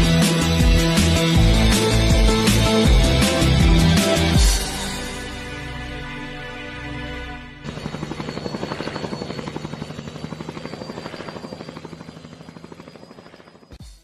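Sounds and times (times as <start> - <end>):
helicopter rotor beating: 7.6 - 14.0
high turbine whine: 7.7 - 13.8.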